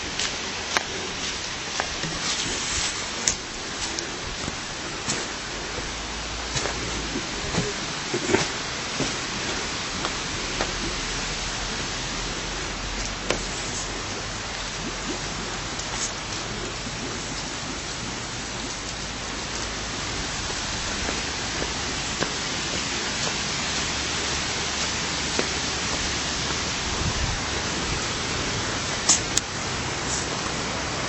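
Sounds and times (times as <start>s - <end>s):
water rushing: 0.0s - 31.0s.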